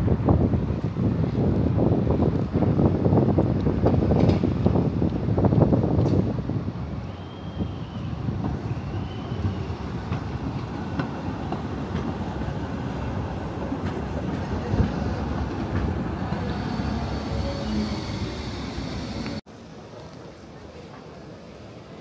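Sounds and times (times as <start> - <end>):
rail vehicle rumbling: 0.0 - 22.0
wheels clicking on track: 13.6 - 19.4.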